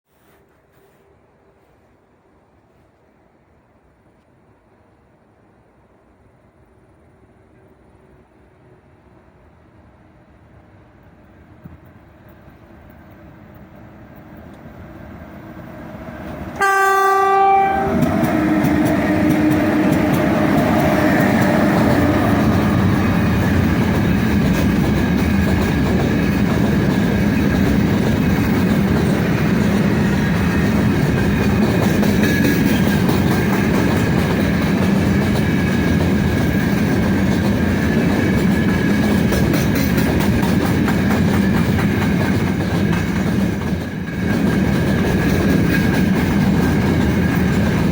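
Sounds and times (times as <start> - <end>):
freight train rolling past: 4.4 - 47.9
train horn blast: 16.6 - 18.6
wheels clicking over rail joints: 17.9 - 47.9.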